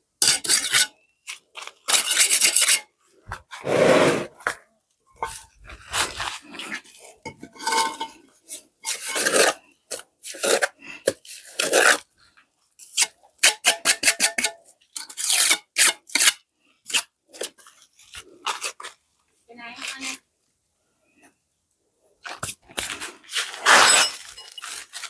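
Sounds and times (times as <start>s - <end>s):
rasping scraping strokes: 3.6s - 4.3s.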